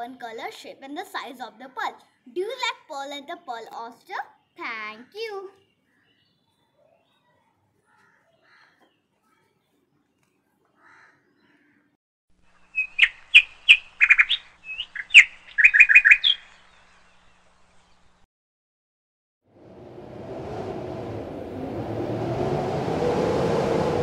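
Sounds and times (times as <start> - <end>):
bird chirping: 12.6 - 18.2.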